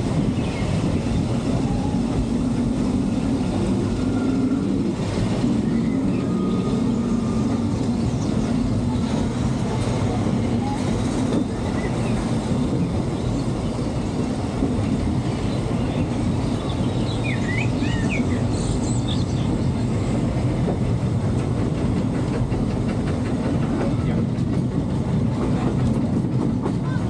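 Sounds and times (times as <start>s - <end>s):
train car rumbling on track: 0.0s - 27.0s
wheels clicking over rail joints: 20.3s - 27.0s.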